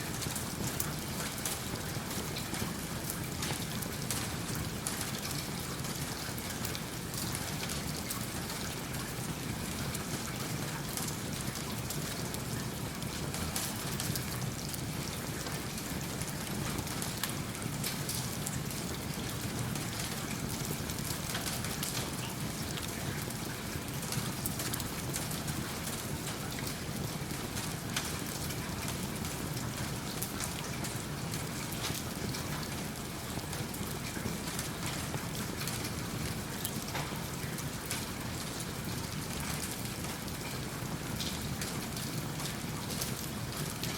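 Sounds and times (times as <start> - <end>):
steady rain patter: 0.0 - 43.9.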